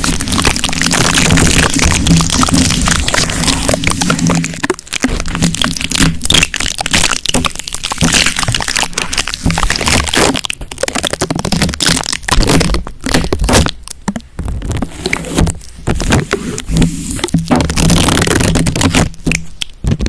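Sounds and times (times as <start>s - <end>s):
sticky surface crackling and popping: 0.0s - 20.0s.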